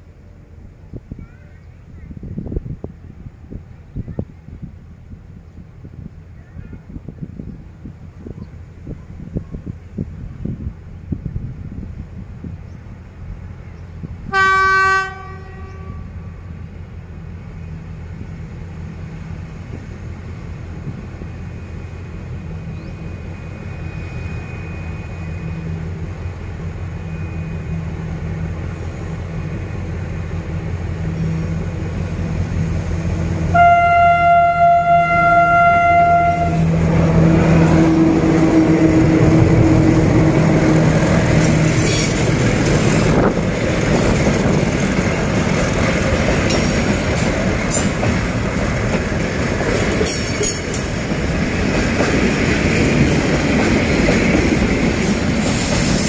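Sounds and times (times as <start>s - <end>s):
train horn: 14.3s - 16.4s, 33.5s - 42.0s
diesel engines rumbling: 16.0s - 56.0s
wheel-on-rail noise: 35.7s - 56.0s.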